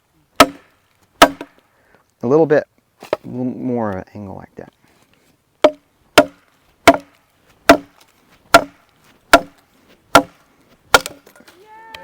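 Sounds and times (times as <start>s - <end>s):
machete striking wood: 0.4s - 1.6s, 5.6s - 11.3s.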